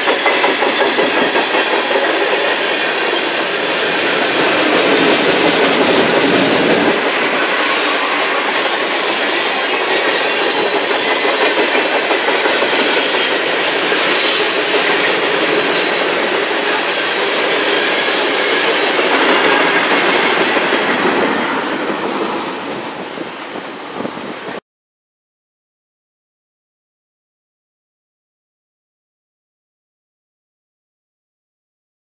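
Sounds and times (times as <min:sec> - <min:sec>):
freight train wheels on rails: 0:00.0 - 0:24.6
high wheel squeals: 0:07.4 - 0:16.0.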